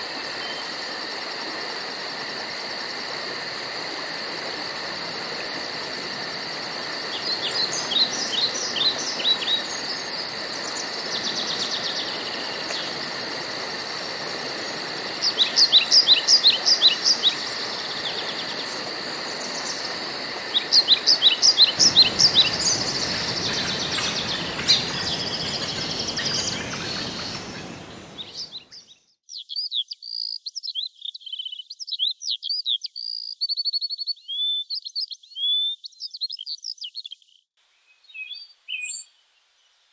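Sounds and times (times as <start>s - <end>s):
high pulsing insect buzz: 0.0s - 28.6s
songbirds singing: 5.1s - 39.8s.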